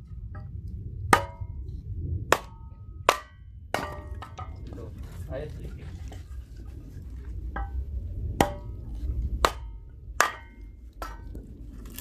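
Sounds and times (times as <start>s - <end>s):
firewood splitting strikes: 1.1s - 1.6s, 2.3s - 4.9s, 8.4s - 12.0s.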